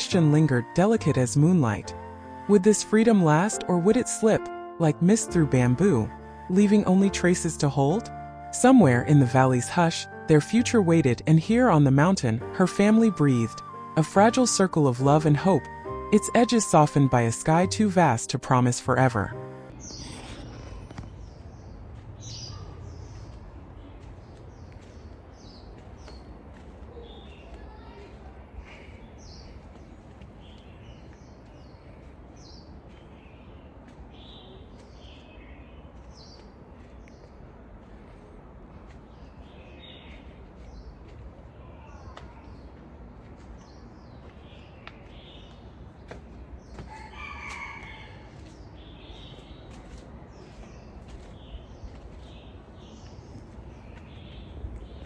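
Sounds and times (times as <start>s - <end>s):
small birds chirping: 19.7s - 37.5s, 38.2s - 47.3s, 48.5s - 55.0s
rooster crowing: 46.9s - 48.5s.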